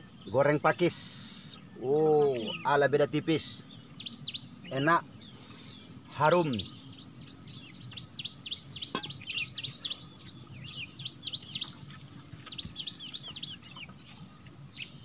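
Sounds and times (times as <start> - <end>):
birds chirping rapidly: 0.0 - 15.0.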